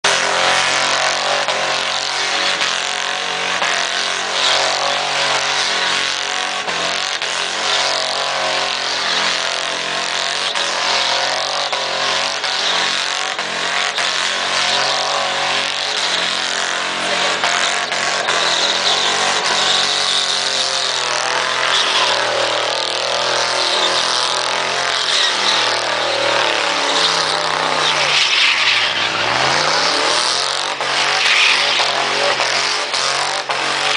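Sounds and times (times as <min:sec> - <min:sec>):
spinning tyres screeching: 0:00.0 - 0:33.9
truck engine revving: 0:00.0 - 0:33.9.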